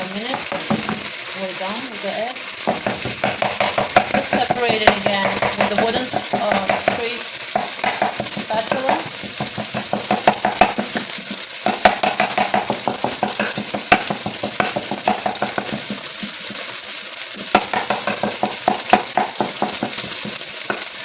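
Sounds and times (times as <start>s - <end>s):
egg sizzling in hot oil: 0.0s - 21.0s
sharp knocks on pan: 0.3s - 1.1s, 2.7s - 16.6s, 17.4s - 20.9s
wooden spatula scraping pan: 2.6s - 20.9s.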